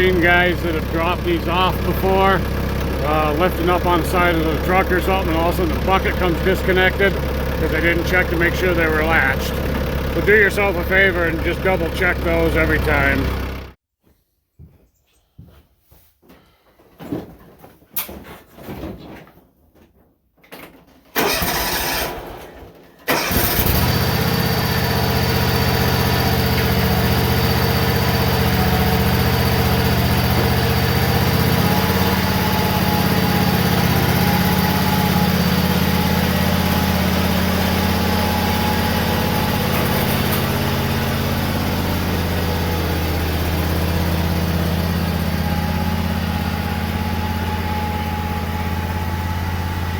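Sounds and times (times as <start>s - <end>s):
diesel engine cranking: 0.0s - 13.8s, 21.1s - 49.9s
tractor engine running: 0.0s - 13.8s, 21.2s - 22.4s, 23.0s - 49.9s
knocks and rattles: 37.8s - 40.8s.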